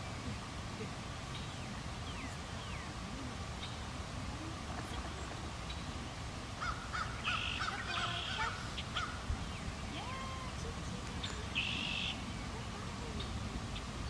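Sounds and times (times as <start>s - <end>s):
birds calling: 0.0s - 4.1s, 4.8s - 14.0s
low background noise: 0.0s - 14.0s
harsh raspy bird calls: 6.6s - 9.2s.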